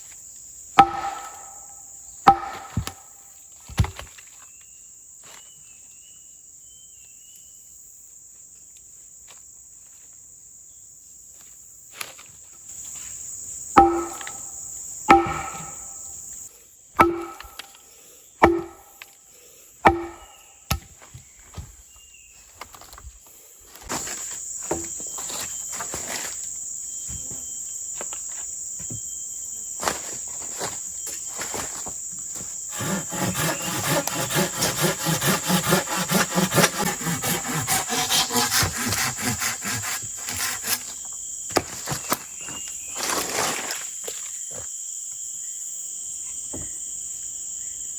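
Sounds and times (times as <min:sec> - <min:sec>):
insects droning: 0:00.0 - 0:47.9
tool striking wood: 0:00.8 - 0:01.7, 0:02.3 - 0:03.1, 0:13.8 - 0:16.1, 0:17.0 - 0:17.7, 0:18.4 - 0:19.0, 0:19.9 - 0:20.9, 0:32.7 - 0:40.8.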